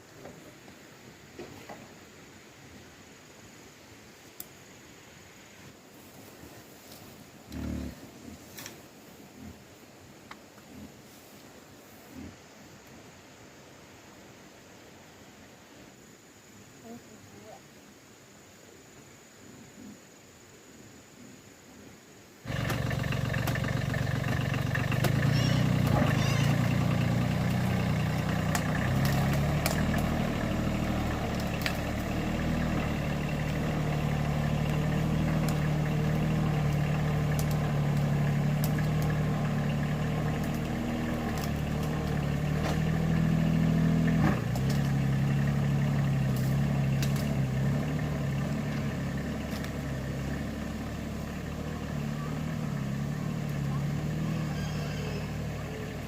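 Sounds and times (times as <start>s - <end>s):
engine running: 7.5s - 8.8s, 22.4s - 56.0s.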